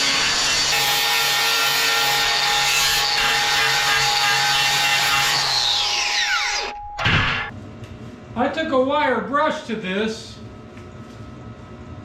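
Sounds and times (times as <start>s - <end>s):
wire brush grinder scrubbing steel: 0.0s - 6.6s
grinder winding down whine: 2.2s - 7.5s.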